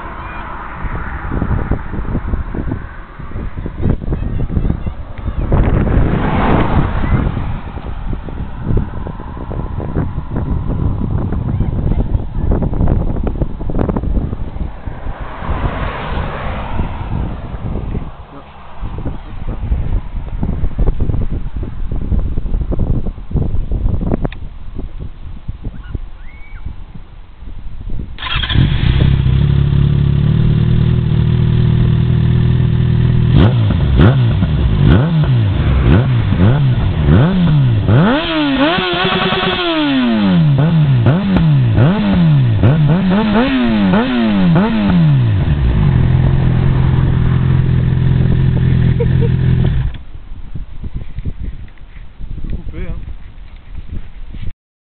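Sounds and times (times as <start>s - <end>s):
motorcycle engine starting and revving: 28.2s - 50.1s.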